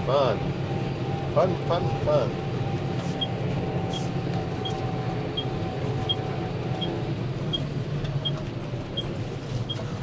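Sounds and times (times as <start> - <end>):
tractor engine running: 2.4 - 10.0.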